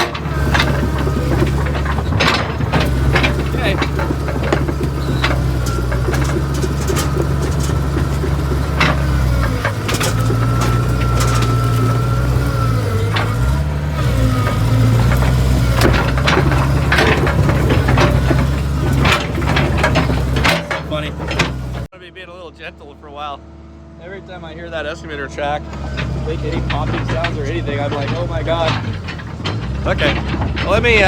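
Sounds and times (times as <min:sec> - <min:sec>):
hydraulic whine: 0:00.0 - 0:21.9
wood cracking: 0:00.0 - 0:21.9, 0:25.6 - 0:31.0
diesel engine running: 0:00.0 - 0:31.0
track clanking: 0:00.0 - 0:31.0.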